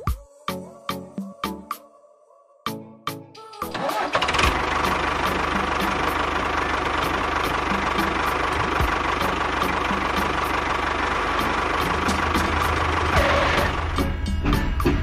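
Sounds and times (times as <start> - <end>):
diesel tractor engine knocking: 3.8 - 15.0.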